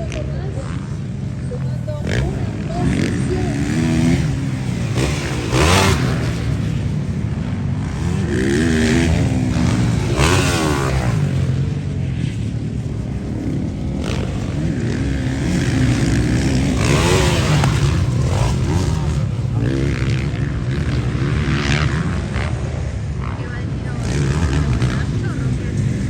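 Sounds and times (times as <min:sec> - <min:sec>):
motocross bike engines revving: 0:00.0 - 0:26.0.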